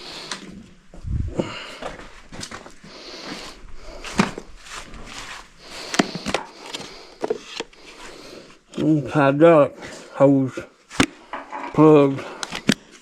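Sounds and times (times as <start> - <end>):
hydraulic hoses clicking and rustling: 11.0 - 13.0.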